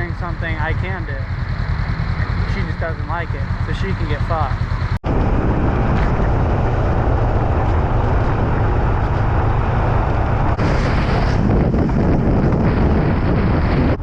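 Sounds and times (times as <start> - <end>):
motorcycle engine running: 0.0 - 14.0
wind rush on microphone: 4.2 - 14.0.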